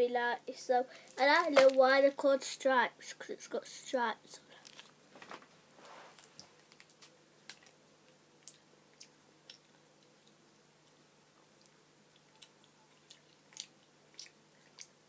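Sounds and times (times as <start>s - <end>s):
person chewing a sweet: 6.4s - 15.0s.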